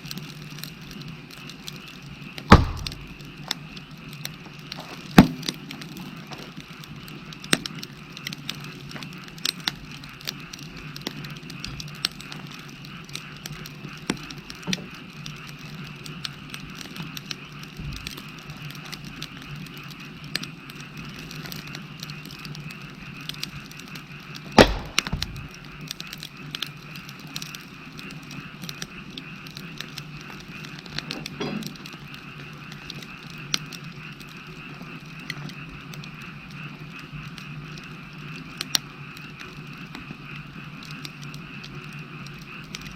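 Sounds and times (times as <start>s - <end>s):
wood fire crackling and popping: 0.0s - 42.9s
frogs calling: 1.4s - 6.8s, 7.8s - 42.9s.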